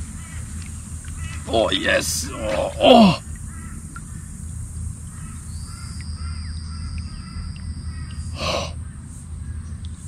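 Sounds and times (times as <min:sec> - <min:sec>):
birds calling: 0:00.0 - 0:10.0
harsh crow-like caw: 0:02.8 - 0:04.3, 0:05.1 - 0:08.7.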